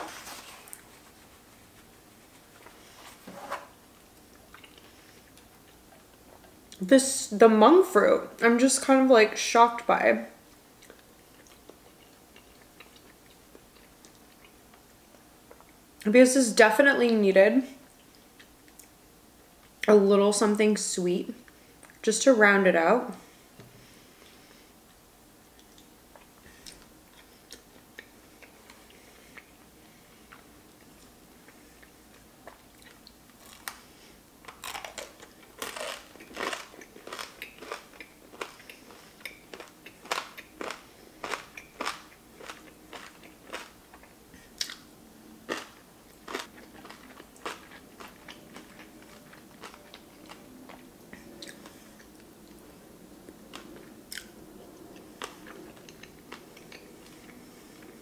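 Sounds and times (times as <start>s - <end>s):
chewing and crunching food: 4.0s - 6.9s, 10.5s - 15.8s, 24.2s - 58.0s.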